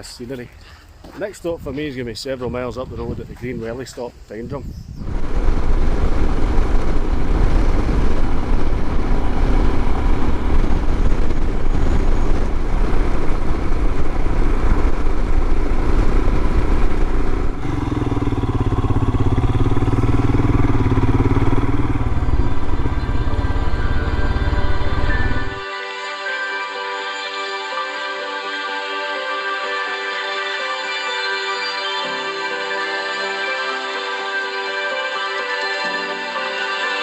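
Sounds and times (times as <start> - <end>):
wind rush: 4.6 - 25.6
motorcycle engine: 5.0 - 25.6
faint rising whine: 5.0 - 36.8.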